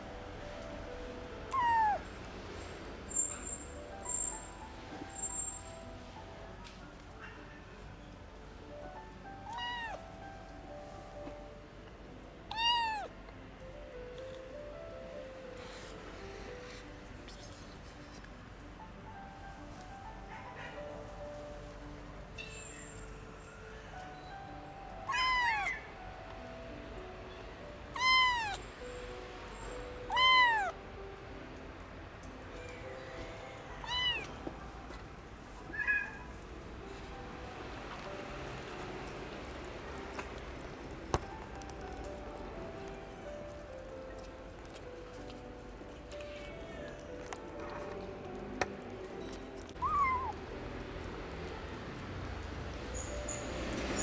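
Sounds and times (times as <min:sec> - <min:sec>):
kitten meowing: 0:01.5 - 0:02.1, 0:09.4 - 0:10.0, 0:12.5 - 0:13.1, 0:25.0 - 0:25.9, 0:27.9 - 0:28.6, 0:30.1 - 0:30.8, 0:33.8 - 0:34.4, 0:35.7 - 0:36.2, 0:49.7 - 0:50.4.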